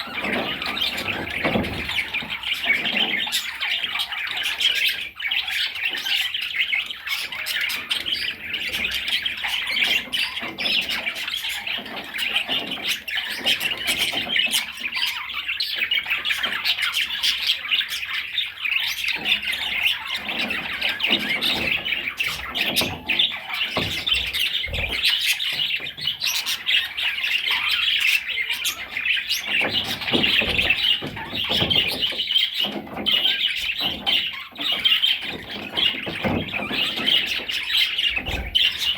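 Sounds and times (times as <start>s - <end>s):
budgerigar warbling: 20.5s - 38.9s.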